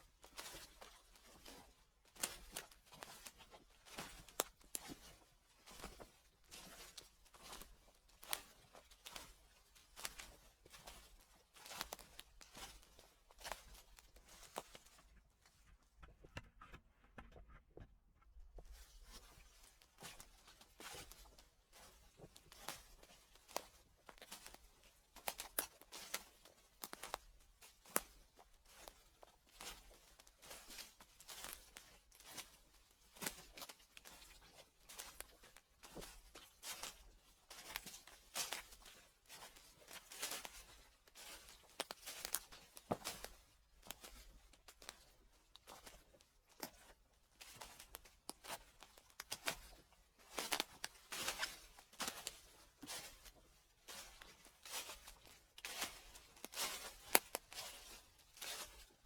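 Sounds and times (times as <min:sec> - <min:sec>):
footsteps crunching dry leaves: 0:50.3 - 0:58.9.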